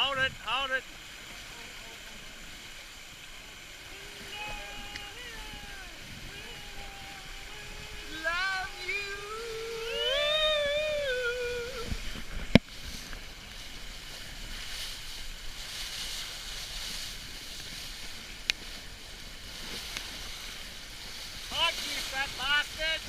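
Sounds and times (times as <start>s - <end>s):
wind and water rushing: 0.0s - 23.0s
long drawn-out voice call: 3.8s - 12.2s.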